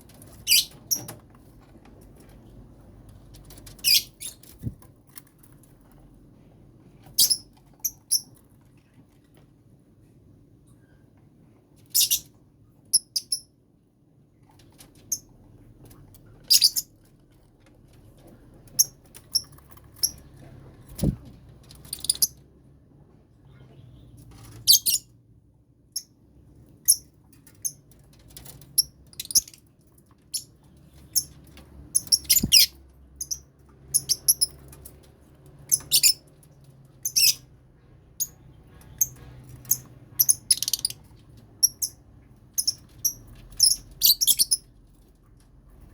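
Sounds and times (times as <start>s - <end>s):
lovebirds chirping: 21.8s - 22.4s, 30.3s - 34.6s, 35.7s - 36.2s, 37.0s - 37.5s, 38.2s - 41.0s, 42.6s - 44.6s.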